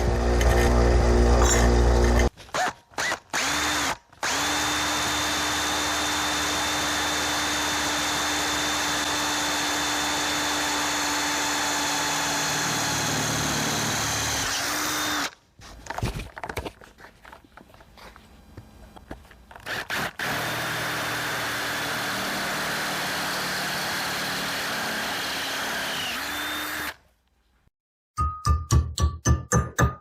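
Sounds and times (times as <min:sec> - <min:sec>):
power drill whining: 0:00.0 - 0:15.4, 0:19.5 - 0:27.0
handling and scraping sounds: 0:15.3 - 0:19.7.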